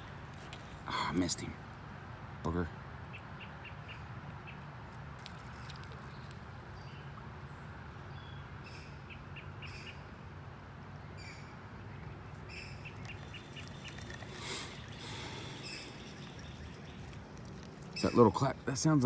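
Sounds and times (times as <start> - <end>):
high chirping bird calls: 11.2 - 18.8
harsh bird clack: 12.8 - 18.4.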